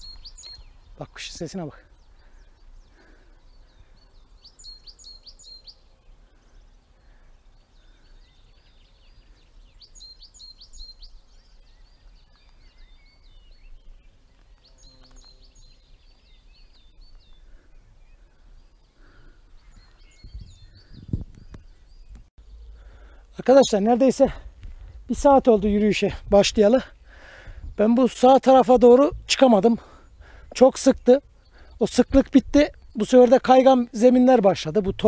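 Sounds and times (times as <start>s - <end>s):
songbird singing faintly: 0.0s - 35.0s.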